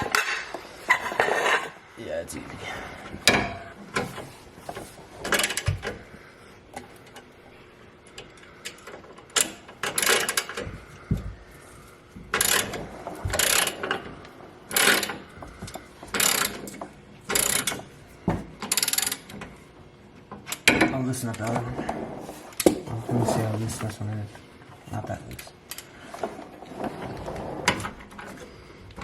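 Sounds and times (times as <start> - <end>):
hand ratchet clicking: 14.7 - 15.2, 16.1 - 17.8, 18.6 - 19.4.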